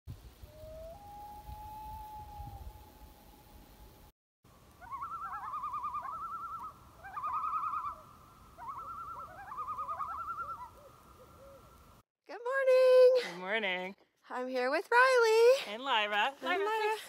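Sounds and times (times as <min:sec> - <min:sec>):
loon tremolo calls: 0:04.7 - 0:11.8.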